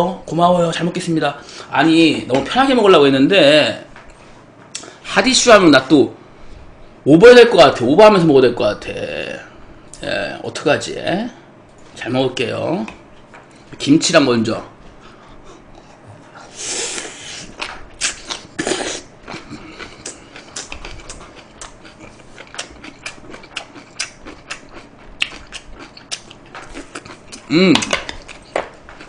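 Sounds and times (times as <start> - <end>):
crunchy chewing: 16.9 - 29.0.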